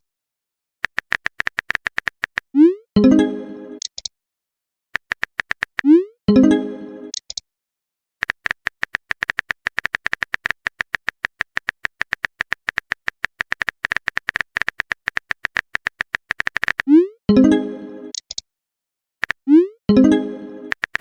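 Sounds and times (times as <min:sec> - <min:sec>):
rapid typing clicks: 0:00.8 - 0:02.5, 0:05.0 - 0:05.9, 0:08.2 - 0:16.9, 0:20.7 - 0:21.0.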